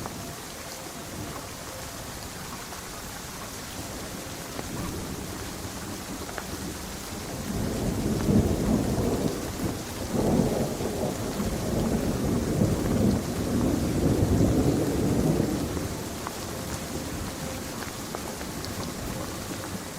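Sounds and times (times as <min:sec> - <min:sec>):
steady rain: 0:00.0 - 0:19.9
thunder rumbling: 0:00.0 - 0:19.9.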